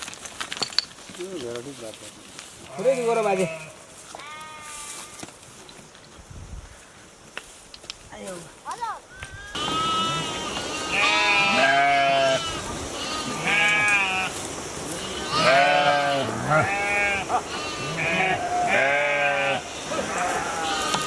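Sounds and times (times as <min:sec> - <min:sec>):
sheep bleating: 0:02.7 - 0:05.2, 0:09.4 - 0:21.0.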